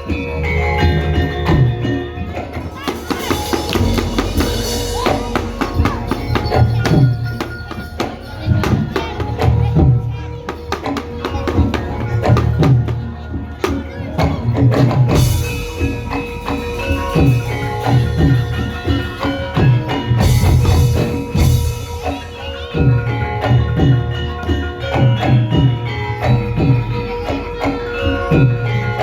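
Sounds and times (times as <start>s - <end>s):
ringing metallophone notes: 0.0s - 29.0s
rapid drum strokes: 2.5s - 24.1s.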